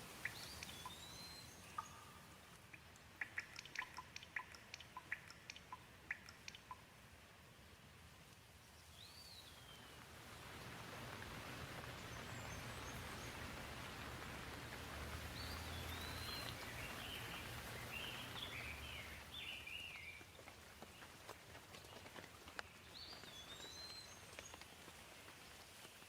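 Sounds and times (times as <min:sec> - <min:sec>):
light rain hissing: 0:00.0 - 0:26.0
bird chirping: 0:00.1 - 0:06.9, 0:15.2 - 0:21.1, 0:22.6 - 0:24.6.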